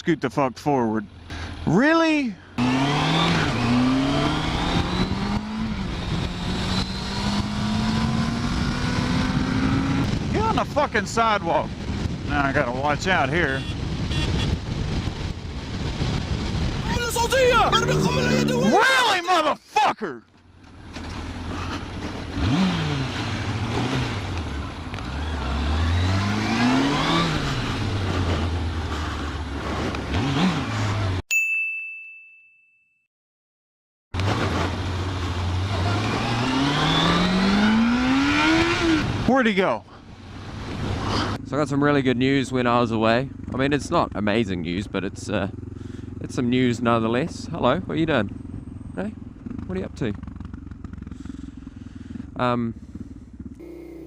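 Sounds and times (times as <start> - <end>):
motorcycle engine accelerating: 2.6 - 12.9, 13.8 - 19.1, 20.6 - 31.2, 34.2 - 39.3, 40.2 - 54.0
wind noise: 4.2 - 18.2
high ding: 31.3 - 33.1.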